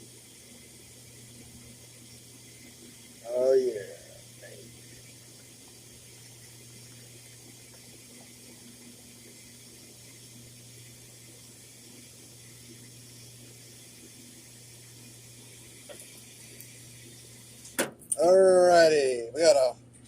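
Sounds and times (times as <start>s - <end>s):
tap water filling a bottle: 4.0s - 18.2s.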